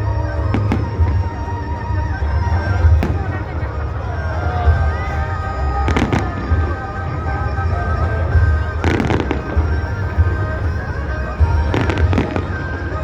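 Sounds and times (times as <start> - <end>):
background music: 0.0 - 13.0
fireworks bangs and crackles: 2.2 - 5.1, 5.8 - 13.0.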